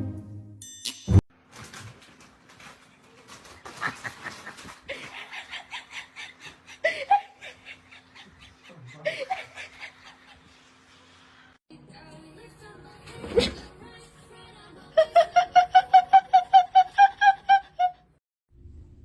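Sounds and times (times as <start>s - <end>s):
person laughing breathily: 3.9s - 10.6s.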